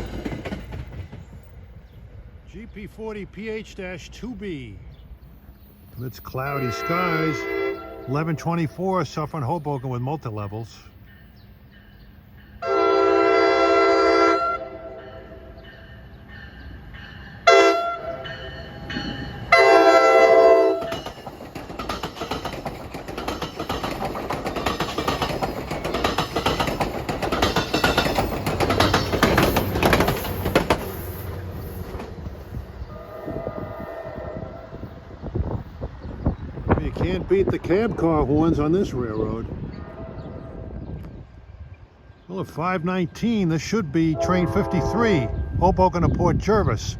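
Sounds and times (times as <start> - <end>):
train wheel clatter and rumble: 0.0 - 2.1, 15.6 - 42.3
train horn blasts: 6.5 - 8.2, 12.6 - 15.6, 17.4 - 21.0, 32.9 - 35.0, 39.7 - 40.8, 44.1 - 45.6.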